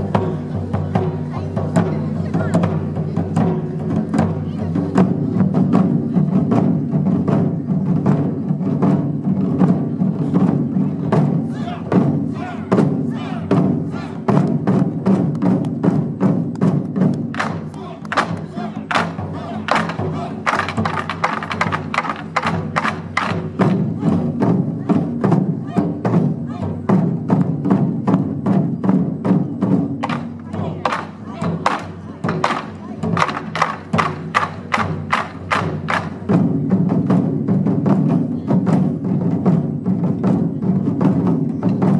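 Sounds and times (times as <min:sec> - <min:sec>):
taiko drums playing fast rhythm: 0:00.0 - 0:41.9
sharp wooden clacks: 0:19.7 - 0:23.4, 0:31.7 - 0:36.2.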